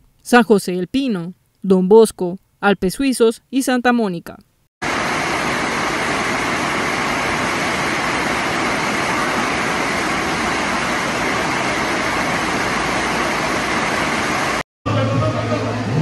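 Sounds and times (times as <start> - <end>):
heavy rain: 4.8 - 14.6.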